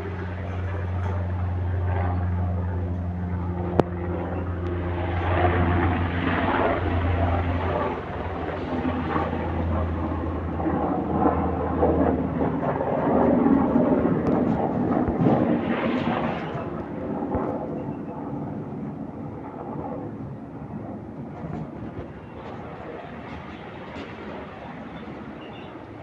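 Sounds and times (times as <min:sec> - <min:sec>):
aircraft engines droning: 0:00.0 - 0:26.0
rushing noise: 0:07.9 - 0:09.4.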